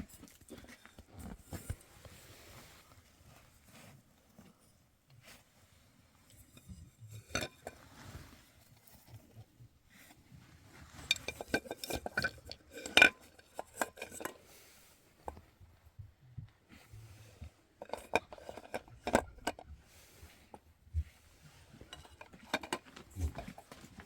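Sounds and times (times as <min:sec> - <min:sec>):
dishes and utensils clinking: 0:10.9 - 0:14.6.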